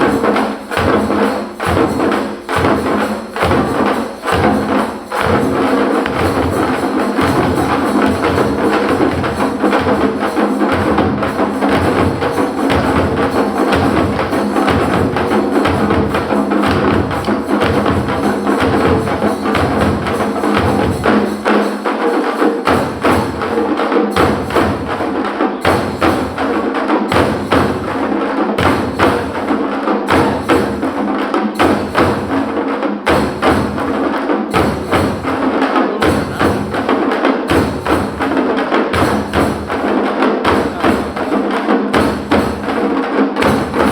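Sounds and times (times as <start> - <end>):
deep drum beat: 0.0 - 21.3, 34.6 - 43.9
frame drums played with sticks: 0.0 - 43.9.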